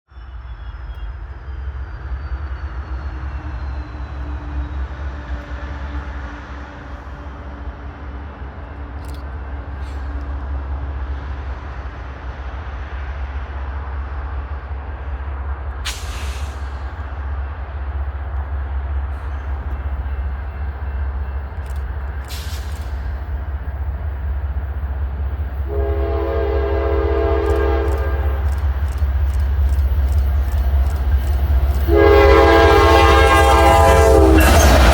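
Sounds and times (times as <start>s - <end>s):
freight train rumbling past: 0.2s - 34.9s
locomotive air horn blast: 25.6s - 28.5s, 31.9s - 34.9s.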